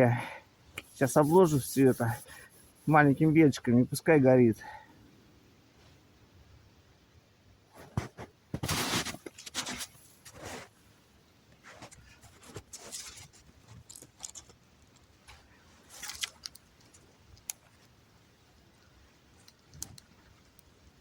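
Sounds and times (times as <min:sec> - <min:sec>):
dry twigs rustling and snapping: 0:12.8 - 0:18.0, 0:18.7 - 0:20.7.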